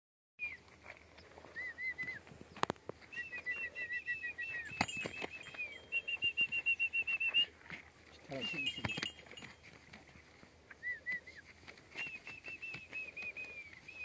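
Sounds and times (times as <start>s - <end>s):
bird singing in chirps: 8.3s - 9.2s.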